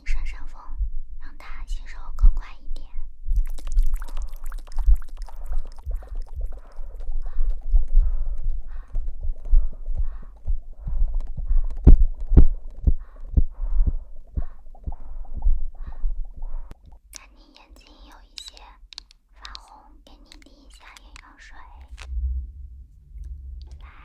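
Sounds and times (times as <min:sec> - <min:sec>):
soft thumps and rubbing on microphone: 0:07.8 - 0:16.7.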